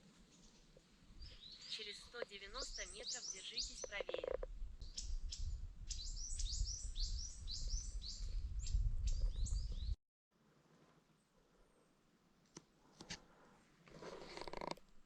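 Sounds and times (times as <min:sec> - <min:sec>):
small birds chirping: 0:00.3 - 0:10.0.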